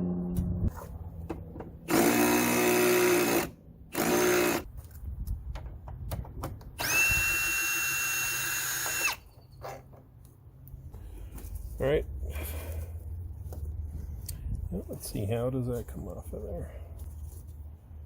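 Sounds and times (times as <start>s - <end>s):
power drill motor whine: 1.9s - 4.7s, 6.8s - 9.3s.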